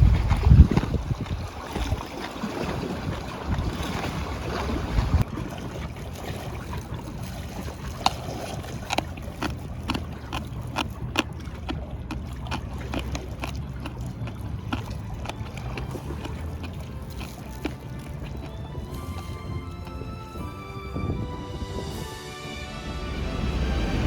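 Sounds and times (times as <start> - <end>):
low rumble: 9.1 - 24.0.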